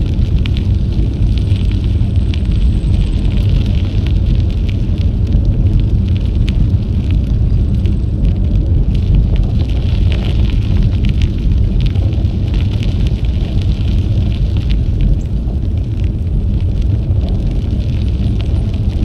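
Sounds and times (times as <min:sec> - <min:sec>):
tyres crackling on trail: 0:00.0 - 0:19.0
wind rumbling on microphone: 0:00.0 - 0:19.0.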